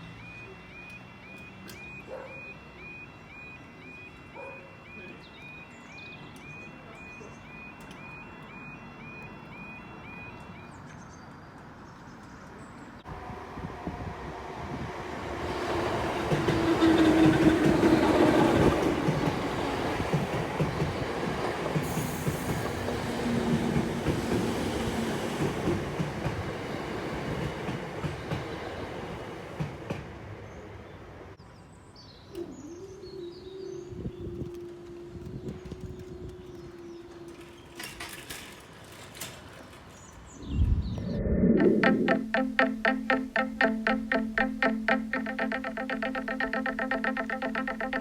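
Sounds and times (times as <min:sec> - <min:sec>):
steady tone: 0:40.9 - 0:48.0.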